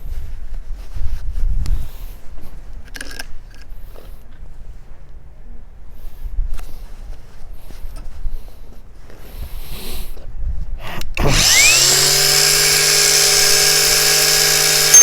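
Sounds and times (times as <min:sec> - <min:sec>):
angle grinder whine: 0:11.2 - 0:15.0.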